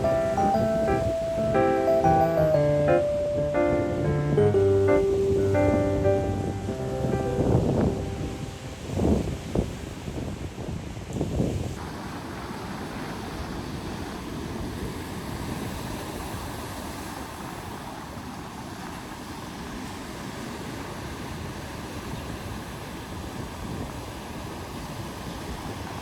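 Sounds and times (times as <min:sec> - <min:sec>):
sea surf rushing: 0:00.0 - 0:26.0
wind buffeting microphone: 0:04.9 - 0:17.2.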